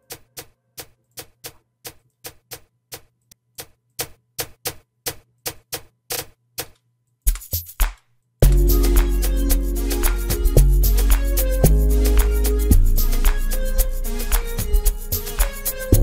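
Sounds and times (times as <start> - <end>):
clicky percussion loop: 7.3 - 16.0
heavy low hits: 8.4 - 14.8.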